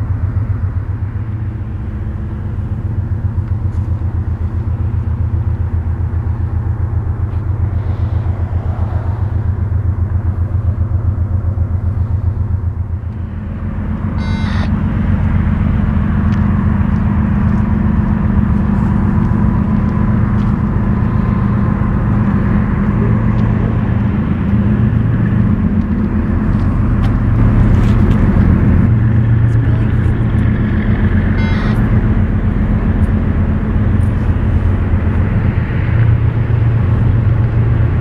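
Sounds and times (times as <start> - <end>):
diesel locomotive engine drone: 0.0 - 38.0
high squeak: 14.2 - 14.7, 31.4 - 31.9.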